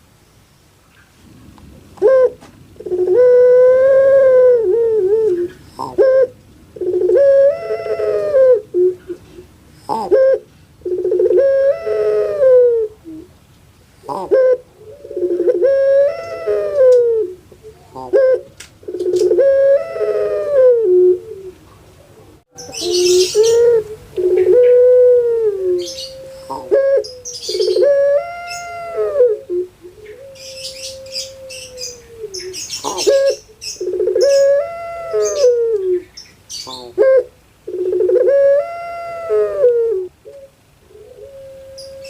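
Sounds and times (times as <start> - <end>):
doves cooing: 1.8 - 42.0
birds chirping: 14.0 - 25.1, 25.7 - 39.6.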